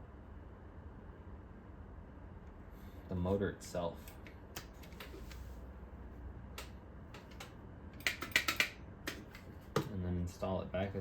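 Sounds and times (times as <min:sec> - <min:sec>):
low steady hum: 0:00.0 - 0:11.0
plastic parts clicking and tapping: 0:06.6 - 0:09.9.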